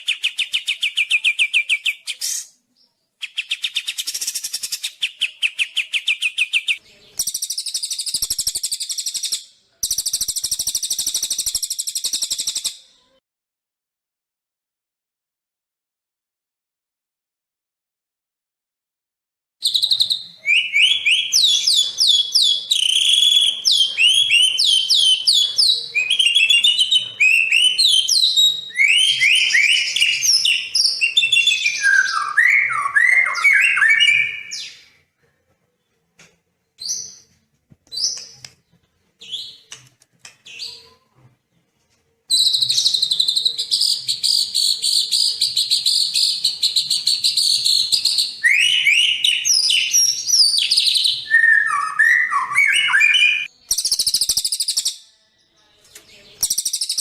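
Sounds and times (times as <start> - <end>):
songbird singing: 0.0 - 13.2, 19.6 - 35.0, 42.3 - 57.0.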